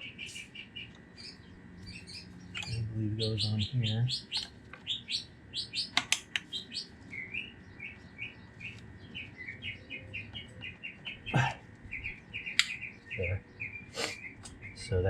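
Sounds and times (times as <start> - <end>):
small songbird chirping: 0.0 - 15.0
sharp clicks: 5.8 - 6.6, 12.5 - 12.8.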